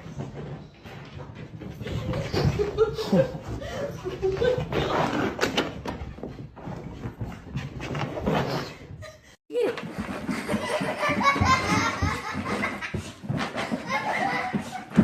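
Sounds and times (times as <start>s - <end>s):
people laughing: 1.8s - 5.0s, 10.3s - 15.0s.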